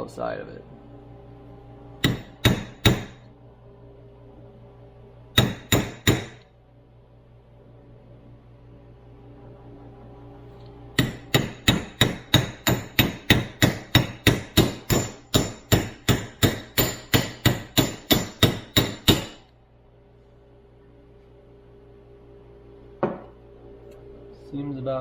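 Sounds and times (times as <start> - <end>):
hammer tapping on metal: 2.0 - 3.2, 5.4 - 6.4, 11.0 - 19.4.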